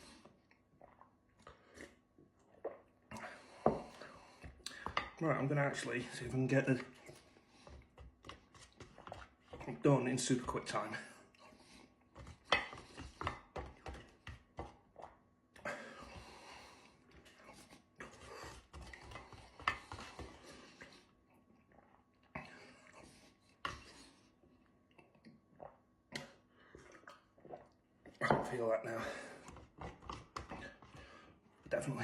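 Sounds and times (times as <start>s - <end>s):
person chewing: 0.4s - 4.8s.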